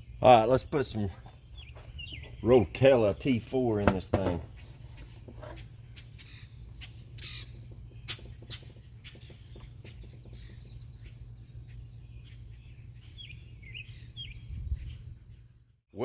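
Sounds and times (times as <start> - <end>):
bird chirping: 0.0 - 4.6, 5.4 - 15.7
steady low hum: 0.0 - 15.8
light knocks and clicks: 3.8 - 4.6.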